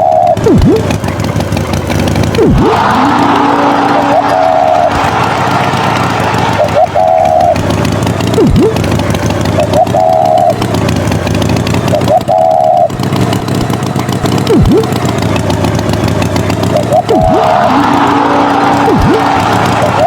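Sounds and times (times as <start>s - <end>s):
short warbling tone: 0.0s - 1.0s, 2.4s - 8.9s, 9.6s - 10.6s, 11.9s - 12.9s, 14.4s - 15.0s, 16.7s - 20.0s
cartoon tractor engine running: 0.0s - 20.0s.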